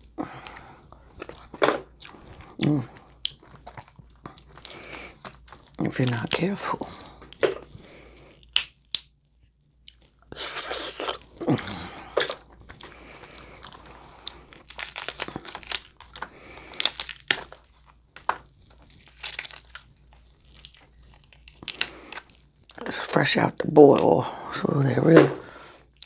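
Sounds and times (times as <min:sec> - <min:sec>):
close-up chewing: 0:00.0 - 0:23.2
crab shells cracking: 0:03.0 - 0:09.2, 0:11.0 - 0:22.9.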